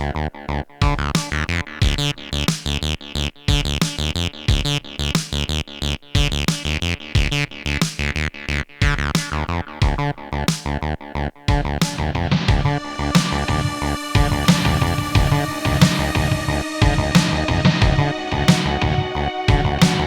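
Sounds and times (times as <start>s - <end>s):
synthesizer acid bass line: 0.0s - 20.0s
low beat: 11.5s - 20.0s.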